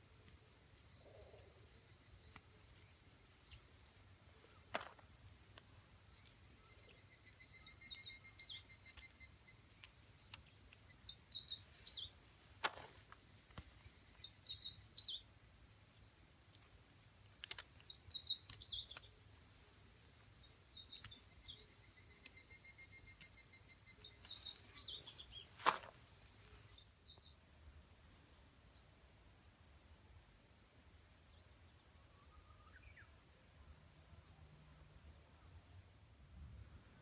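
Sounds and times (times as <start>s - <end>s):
bird chirping: 0.0s - 27.4s, 31.2s - 34.5s
outdoor background noise: 0.0s - 37.0s
stems snapping: 2.2s - 2.6s, 3.4s - 4.0s, 4.6s - 6.7s, 7.8s - 15.1s, 16.4s - 19.2s, 20.4s - 26.0s.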